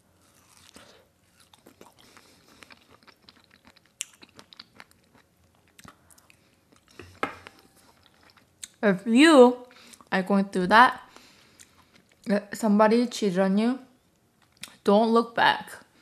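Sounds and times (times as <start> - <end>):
wet chewing mouth sounds: 1.4 - 8.8.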